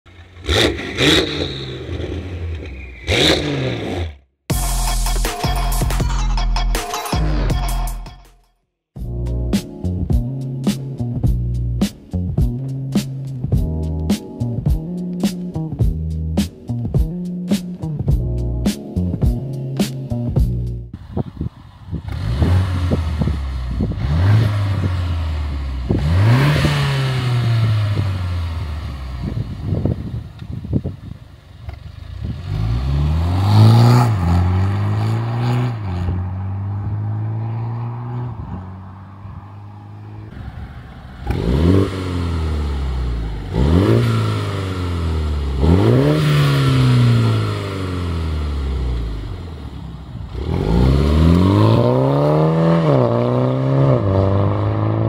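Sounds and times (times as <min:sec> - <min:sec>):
car engine idling and revving: 0:00.0 - 0:06.4, 0:09.0 - 0:55.0
exhaust cracks: 0:40.2 - 0:54.1.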